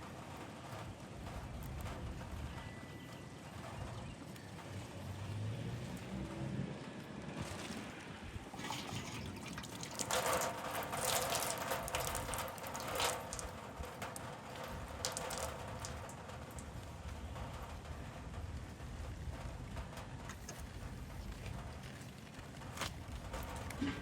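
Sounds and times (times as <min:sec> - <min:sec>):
water gushing and splashing: 0:05.8 - 0:16.8
water dripping: 0:07.4 - 0:24.0.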